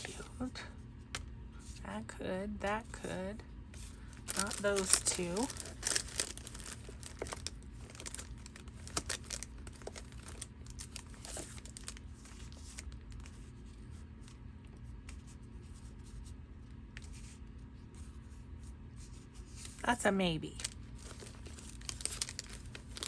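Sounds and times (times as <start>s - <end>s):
steady low hum: 0.0s - 23.0s
paper rustling and tapping: 4.2s - 13.3s, 21.0s - 23.0s.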